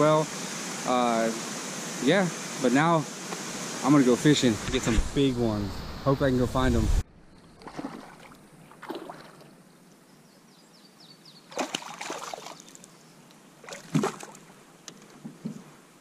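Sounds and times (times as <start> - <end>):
water sloshing and dripping: 7.5 - 9.6, 11.5 - 12.9, 13.6 - 15.3
paddle strokes splashing: 7.6 - 9.6, 11.5 - 12.9, 13.6 - 15.7.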